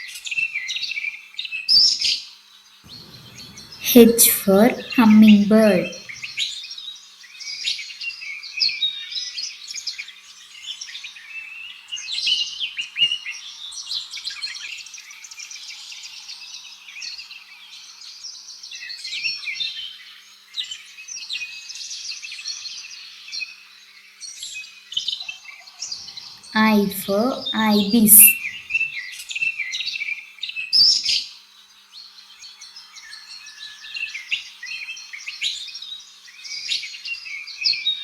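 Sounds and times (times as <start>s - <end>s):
birds chirping: 2.9s - 6.3s.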